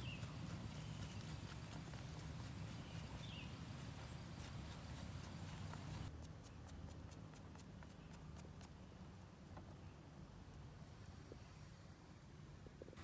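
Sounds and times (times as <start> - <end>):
high-pitched insect chorus: 0.0 - 6.1.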